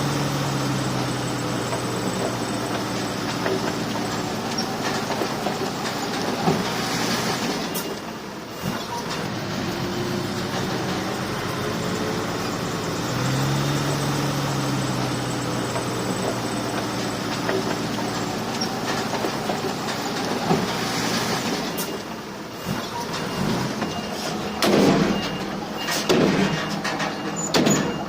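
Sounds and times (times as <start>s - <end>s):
bulldozer diesel engine under load: 0.0s - 28.0s
steel tracks clanking: 15.6s - 28.0s.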